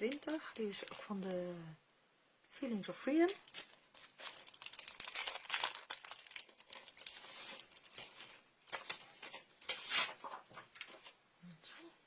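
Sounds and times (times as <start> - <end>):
plastic crinkling and rustling: 0.0 - 1.4, 3.2 - 11.2.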